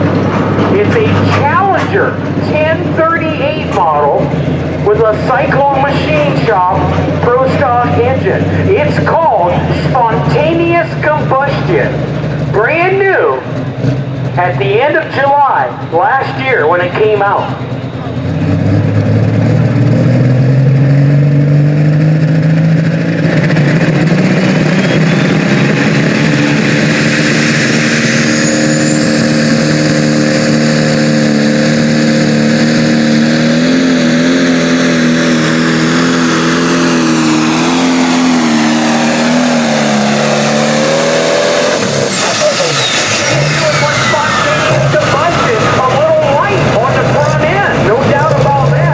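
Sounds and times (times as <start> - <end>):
pulling tractor engine at full power: 0.0 - 48.9.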